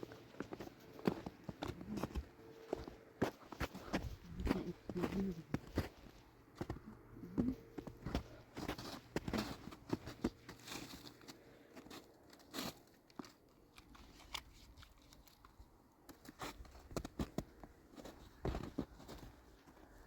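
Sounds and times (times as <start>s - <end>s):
handling crinkling and crackling: 7.0s - 20.0s.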